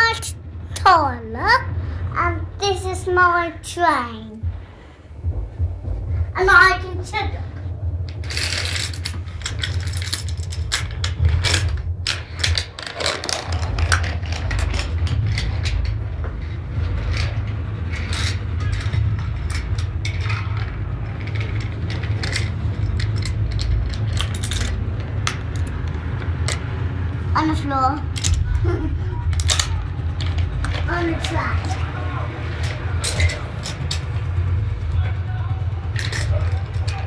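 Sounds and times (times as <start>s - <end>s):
steady low hum: 0.0s - 37.0s
wooden toy train pieces clattering: 8.1s - 26.7s, 28.0s - 37.0s.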